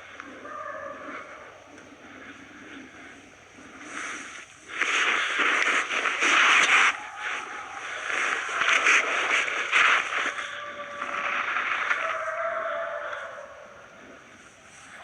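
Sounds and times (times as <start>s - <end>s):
footsteps crunching through snow: 3.8s - 12.8s.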